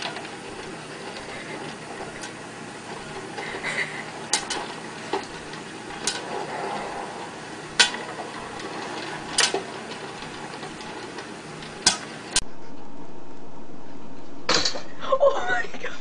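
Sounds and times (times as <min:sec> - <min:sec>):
popcorn popper whirring: 0:00.0 - 0:12.4
kernels popping: 0:07.2 - 0:12.4.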